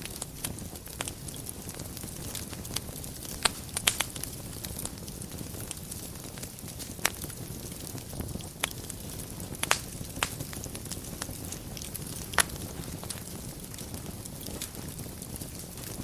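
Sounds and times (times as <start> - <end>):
fire crackling and popping: 0.0 - 16.0
flames rustling: 0.0 - 16.0.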